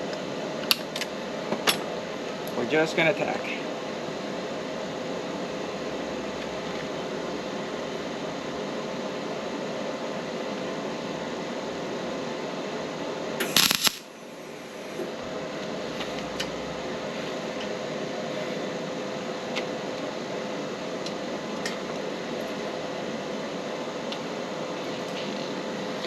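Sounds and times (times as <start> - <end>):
mechanical hum: 0.0 - 26.0
welding crackle: 13.4 - 14.1.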